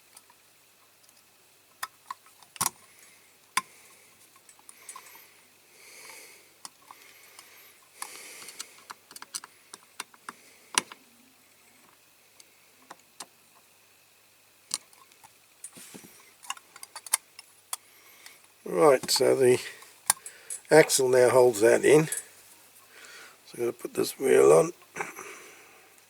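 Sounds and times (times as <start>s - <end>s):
soft hisses: 15.6s - 16.4s, 17.9s - 26.0s.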